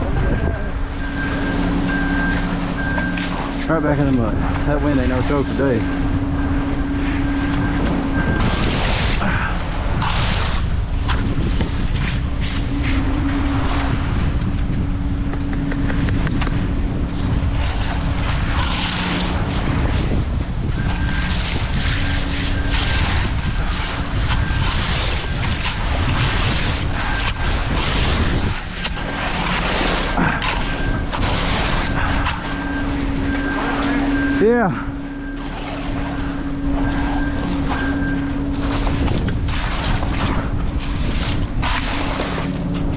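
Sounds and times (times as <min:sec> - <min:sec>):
engine running: 0:00.0 - 0:42.9
strong wind buffeting microphone: 0:00.0 - 0:42.9
faint high beep: 0:00.6 - 0:08.5, 0:31.8 - 0:38.4.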